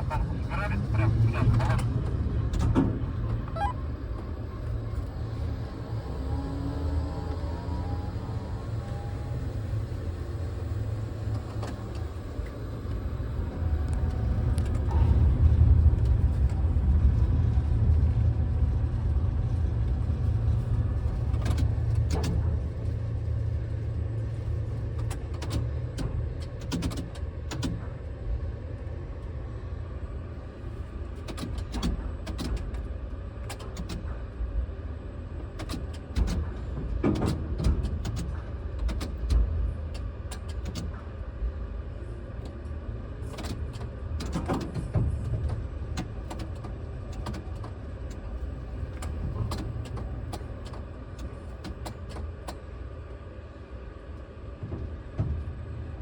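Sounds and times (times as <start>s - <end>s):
sharp clicks and knocks: 24.8s - 28.0s, 31.2s - 34.3s, 35.4s - 41.2s, 43.3s - 52.6s.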